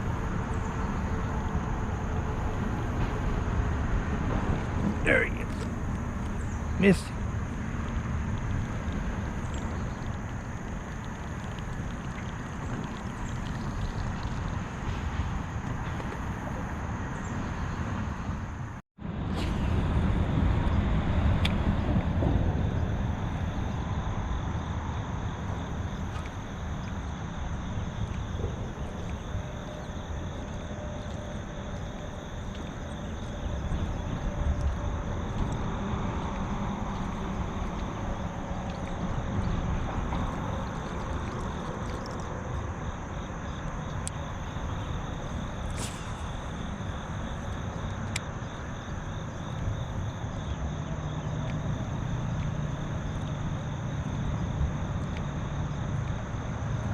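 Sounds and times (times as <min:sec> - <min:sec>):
distant highway traffic rumble: 0:00.0 - 0:56.9
river rapids rushing: 0:04.7 - 0:07.1.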